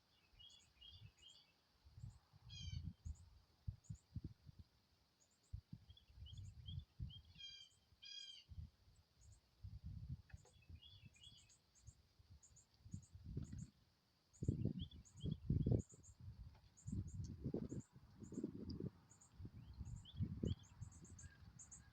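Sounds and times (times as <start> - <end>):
small high bird chirps: 0.0 - 4.6, 5.2 - 21.9.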